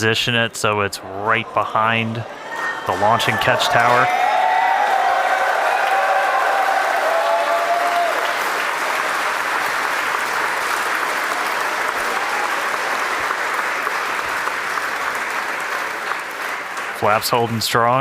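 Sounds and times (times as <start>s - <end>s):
crowd applauding and cheering: 1.0s - 18.0s
person whooping: 4.3s - 8.4s.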